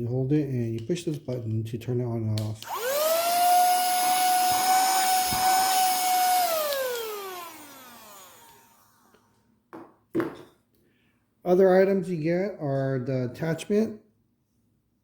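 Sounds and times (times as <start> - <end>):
handheld vacuum cleaner whine: 2.6 - 9.4.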